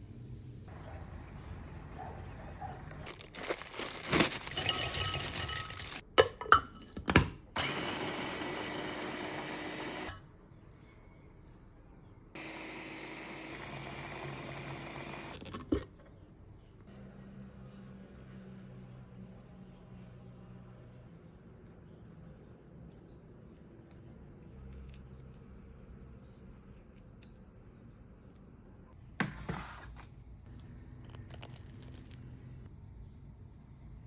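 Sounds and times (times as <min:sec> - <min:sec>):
blender motor grinding: 0:03.1 - 0:06.0, 0:07.6 - 0:10.2, 0:12.4 - 0:15.5
rattling: 0:03.1 - 0:06.0.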